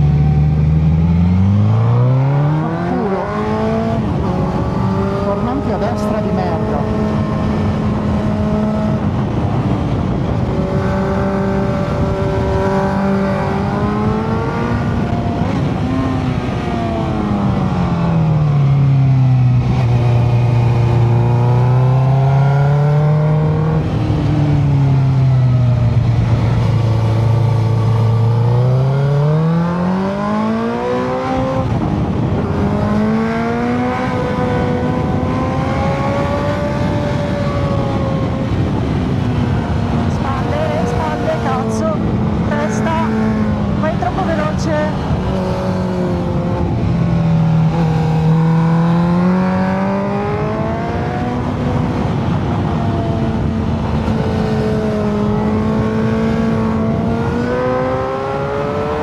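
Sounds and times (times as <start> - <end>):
motorcycle engine running: 31.4 - 58.0.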